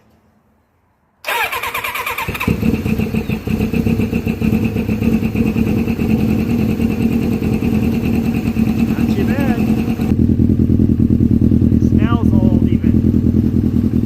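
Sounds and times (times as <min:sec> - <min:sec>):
electric starter cranking: 0:01.2 - 0:03.0
motorcycle engine running: 0:02.2 - 0:14.0.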